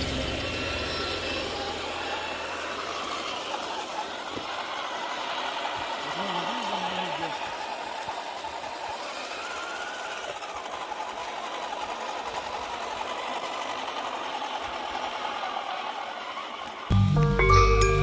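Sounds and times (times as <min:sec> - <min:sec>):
electric motor and gear whine: 0:00.0 - 0:18.0
music with mallet percussion: 0:16.9 - 0:18.0.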